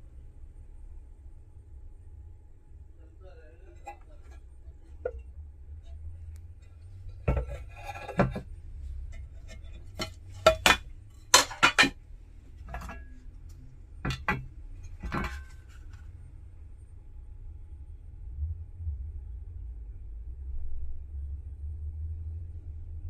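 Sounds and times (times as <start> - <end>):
low steady hum: 0.0 - 23.0
metallic clinks and knocks: 6.6 - 8.5, 9.1 - 12.0, 12.6 - 13.2, 14.0 - 16.0.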